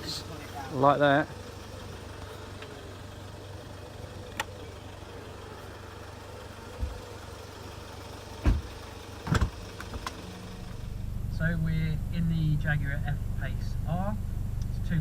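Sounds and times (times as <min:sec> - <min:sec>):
diesel engine idling: 0:00.0 - 0:15.0
dull thumps: 0:08.4 - 0:09.5.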